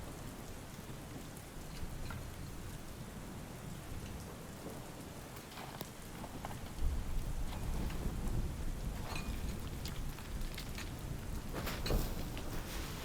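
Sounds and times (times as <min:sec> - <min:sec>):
steady rain falling: 0:00.0 - 0:13.0
low rumble of thunder: 0:06.2 - 0:13.0.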